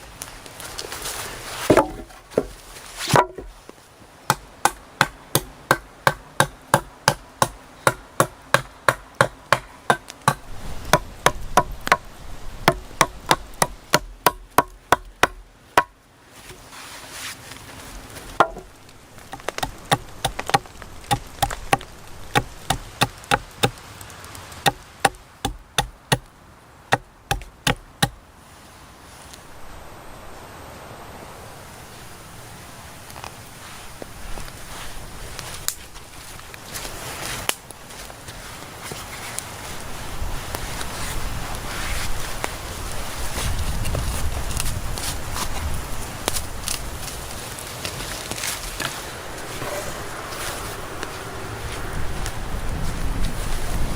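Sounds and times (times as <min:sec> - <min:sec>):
hand tool striking wood: 0:01.7 - 0:03.6, 0:04.3 - 0:16.6, 0:18.4 - 0:23.8, 0:24.6 - 0:26.3, 0:26.9 - 0:28.2.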